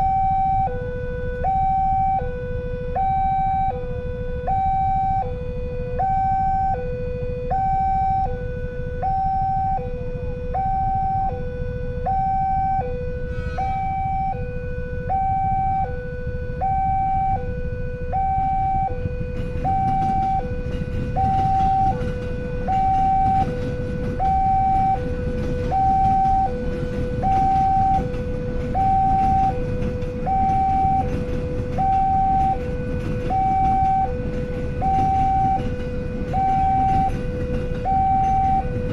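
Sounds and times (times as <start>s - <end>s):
traffic rumble: 0.0s - 38.9s
two-tone emergency siren: 0.0s - 38.9s.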